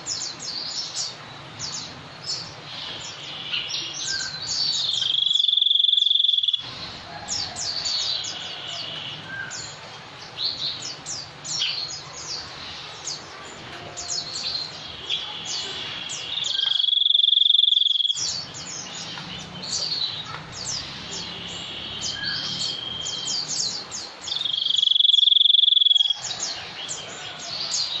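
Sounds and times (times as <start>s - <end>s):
high falling bird chirps: 2.8s - 6.8s, 14.1s - 26.6s.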